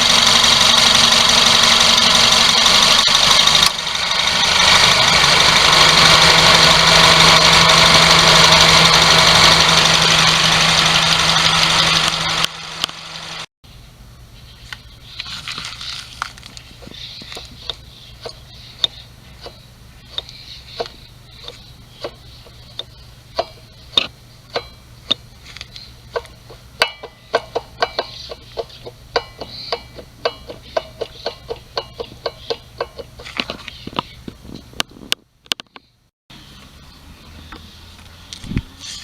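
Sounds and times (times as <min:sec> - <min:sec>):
sharp metallic clicks: 0:17.3 - 0:34.1.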